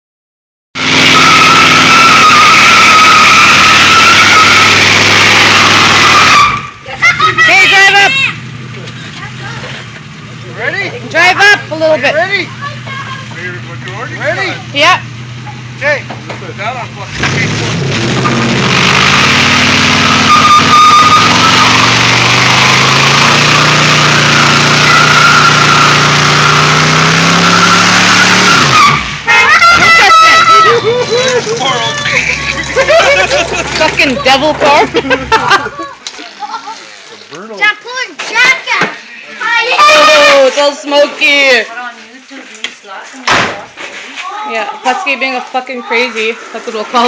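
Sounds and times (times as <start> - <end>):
car engine running: 0.8 - 6.8, 7.4 - 36.0
tires squealing: 0.8 - 36.0, 39.4 - 41.6.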